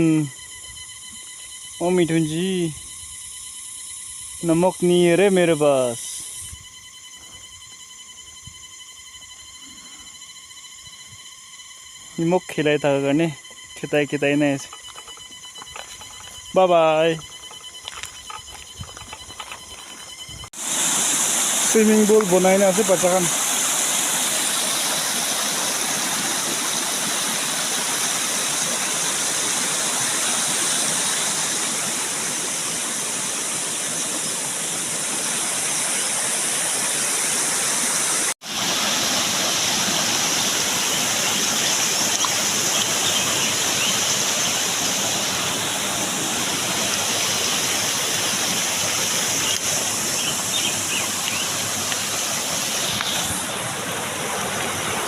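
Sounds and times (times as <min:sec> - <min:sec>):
waterfall and stream rushing: 0:20.6 - 0:55.0.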